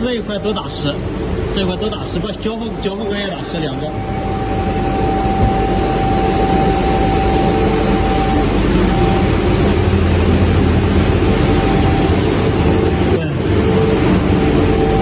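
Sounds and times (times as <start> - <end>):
low hum: 0.0 - 15.0
constant whistling tone: 1.5 - 15.0.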